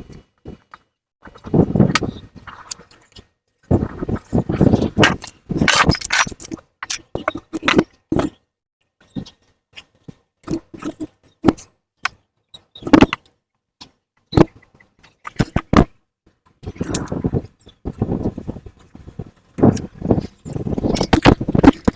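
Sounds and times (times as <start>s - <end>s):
hand tools clanking on metal: 5.0s - 7.8s.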